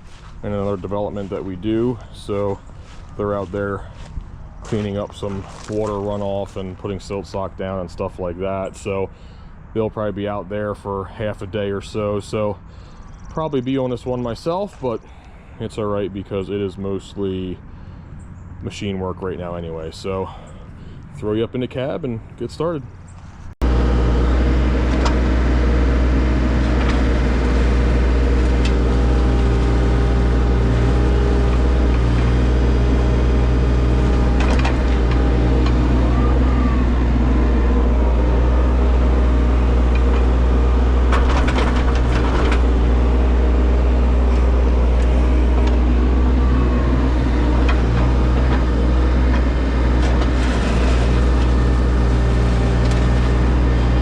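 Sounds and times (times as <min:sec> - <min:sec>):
machine engine running under load: 0:23.6 - 0:54.0
short clunks: 0:26.5 - 0:54.0.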